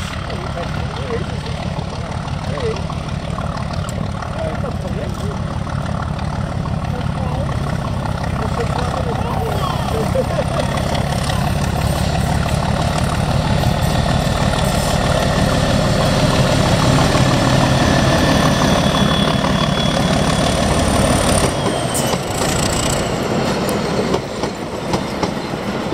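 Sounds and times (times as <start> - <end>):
diesel locomotive engine rumbling: 0.0 - 25.9
train wheel clatter: 0.0 - 25.9
faint wheel squeal: 17.8 - 23.2.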